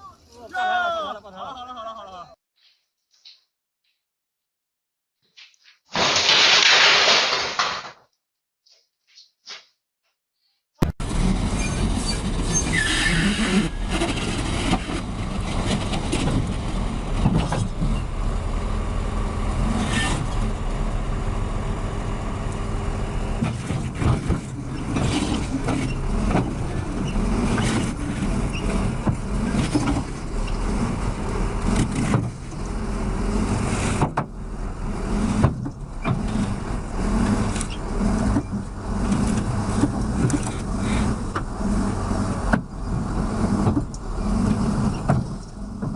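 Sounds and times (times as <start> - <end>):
road traffic: 10.9 - 45.9.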